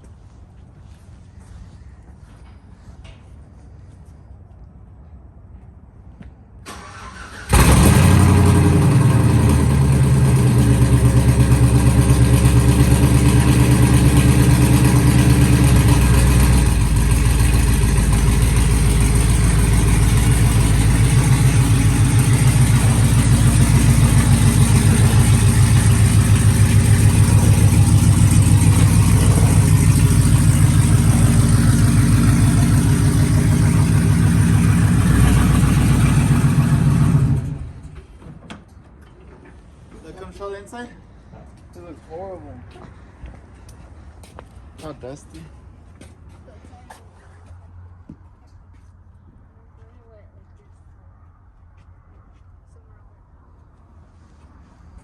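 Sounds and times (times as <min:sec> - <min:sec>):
pickup truck engine starting and idling: 0:06.6 - 0:38.0.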